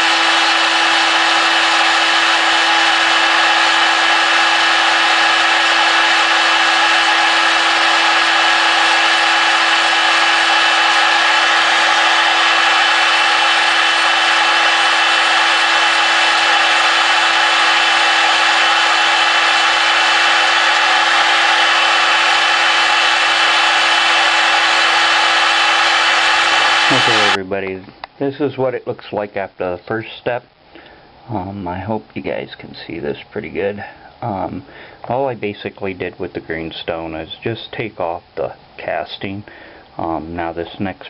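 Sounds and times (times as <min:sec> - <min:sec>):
rotary grinder grinding metal: 0:00.0 - 0:27.4.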